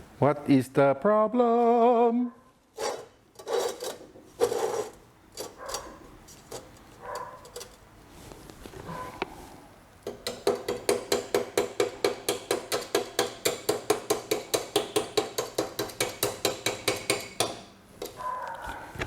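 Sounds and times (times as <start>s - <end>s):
rapid ringing metallic taps: 10.1s - 17.6s.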